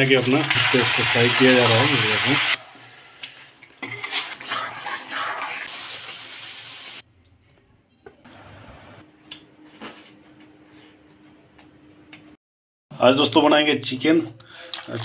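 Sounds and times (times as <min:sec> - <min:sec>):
chicken sizzling in hot oil: 0:00.0 - 0:02.6, 0:03.9 - 0:07.0.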